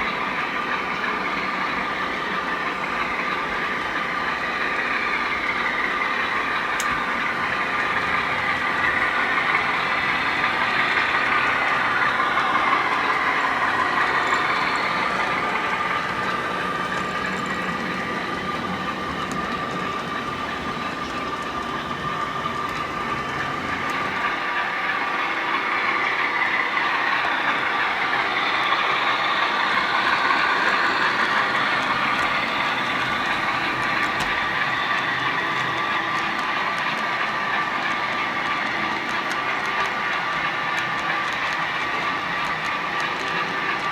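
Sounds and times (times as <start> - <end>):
model train running: 0.0 - 43.9.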